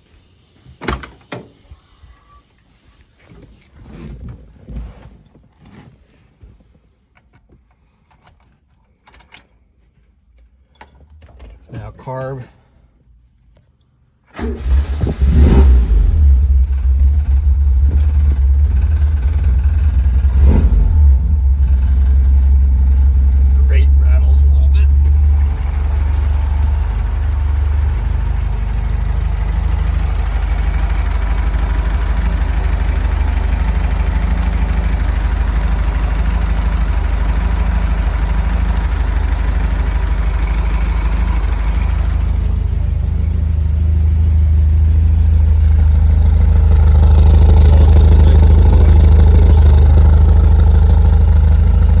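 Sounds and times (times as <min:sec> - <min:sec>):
car engine idling: 0:14.4 - 0:52.0.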